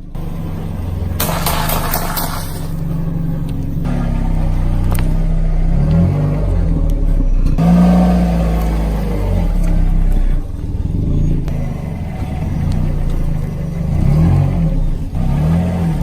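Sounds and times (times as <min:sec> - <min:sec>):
car engine revving: 0:00.0 - 0:16.0
sharp cracks: 0:00.1 - 0:05.2.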